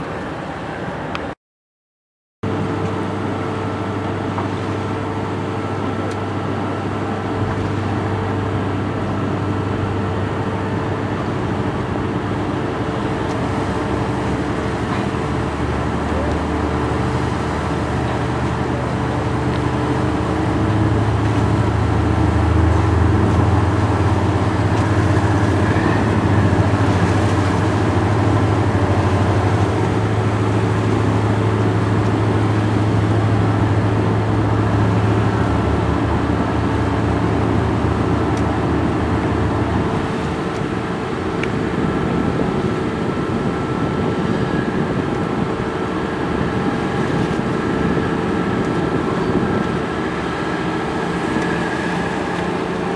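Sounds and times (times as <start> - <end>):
boat engine droning: 0.0 - 1.4, 2.4 - 52.9.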